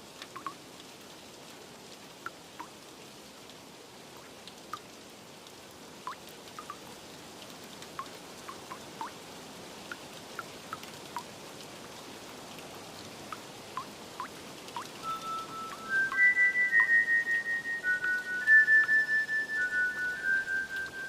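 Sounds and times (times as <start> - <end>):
steady rain: 0.0 - 21.0
water drops plinking: 0.3 - 0.6, 6.1 - 6.8, 13.3 - 21.0
bell-like music note: 15.0 - 18.4.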